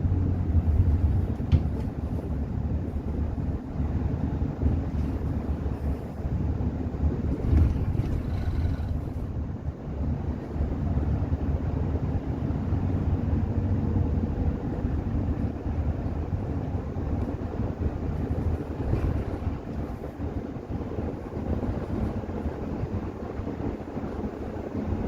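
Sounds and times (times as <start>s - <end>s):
bus engine and road rumble: 0.0s - 25.0s.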